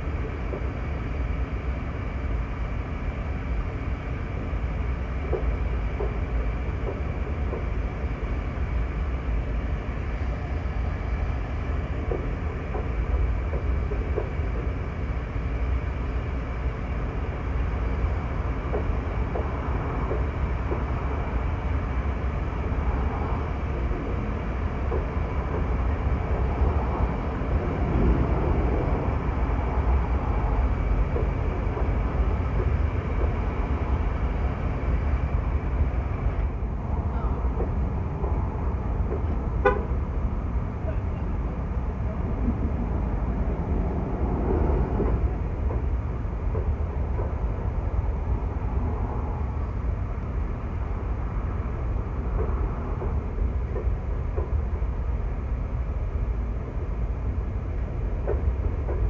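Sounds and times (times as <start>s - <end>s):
freight train rumbling: 0.0s - 59.0s
train wheel clicks: 0.1s - 0.8s, 5.0s - 8.2s, 10.2s - 16.0s, 17.3s - 36.6s, 42.4s - 49.4s, 50.8s - 55.3s, 57.6s - 59.0s.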